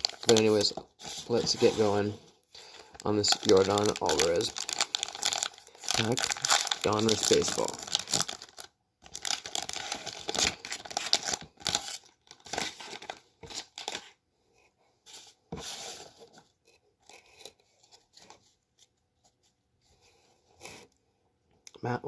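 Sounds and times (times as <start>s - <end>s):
wrapper tearing and crinkling: 0.0s - 1.6s, 3.0s - 14.0s.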